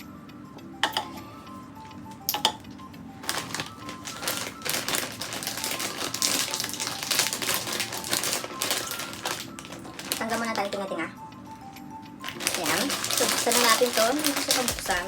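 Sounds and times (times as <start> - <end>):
soft background music: 0.0 - 15.0
plastic snack packet crinkling: 3.2 - 11.0, 12.2 - 15.0.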